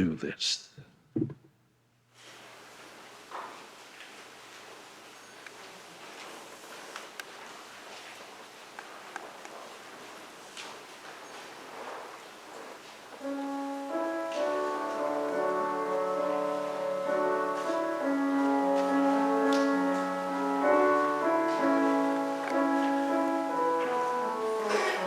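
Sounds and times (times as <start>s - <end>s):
church organ playing chords: 13.2s - 25.0s.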